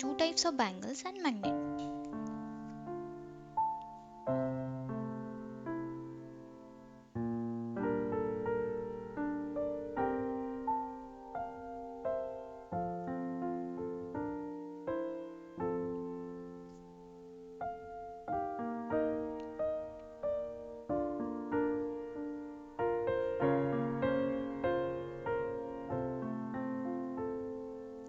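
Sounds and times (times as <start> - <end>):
gentle solo piano: 1.4 - 28.0.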